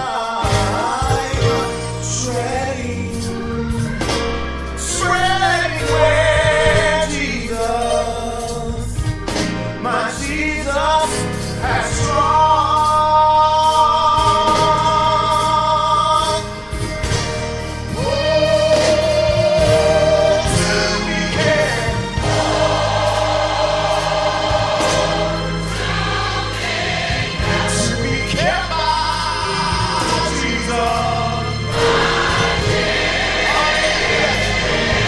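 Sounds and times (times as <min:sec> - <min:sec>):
gospel choir singing: 0:00.0 - 0:35.0
steady bass: 0:00.0 - 0:35.0.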